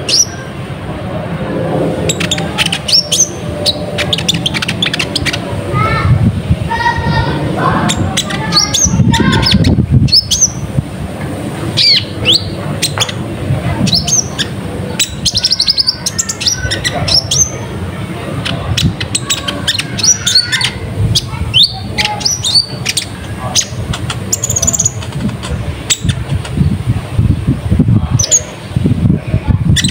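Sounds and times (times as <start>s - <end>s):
bird chirping rapidly: 0.0s - 0.5s, 2.0s - 5.5s, 7.8s - 10.7s, 11.7s - 26.8s, 29.7s - 29.9s.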